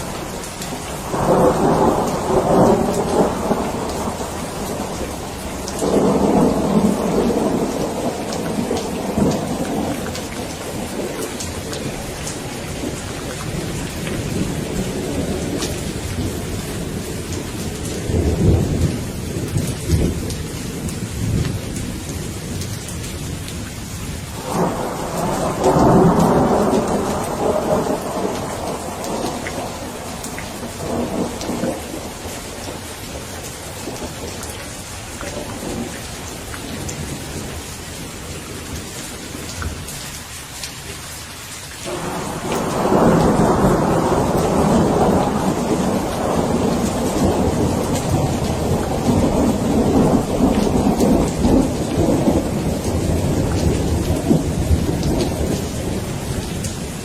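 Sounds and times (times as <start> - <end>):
rolling thunder: 0.0 - 23.7, 24.3 - 34.4, 41.9 - 57.0
steady rain falling: 0.0 - 57.0
thunder crack: 1.0 - 11.9, 24.4 - 32.2, 41.9 - 56.2.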